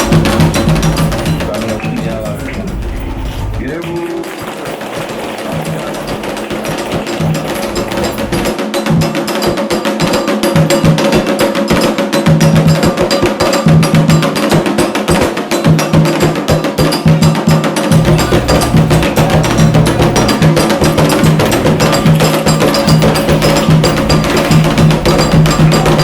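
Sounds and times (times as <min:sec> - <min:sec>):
low drum notes: 0:00.0 - 0:04.3, 0:17.9 - 0:26.0
sharp percussion strikes: 0:00.0 - 0:26.0.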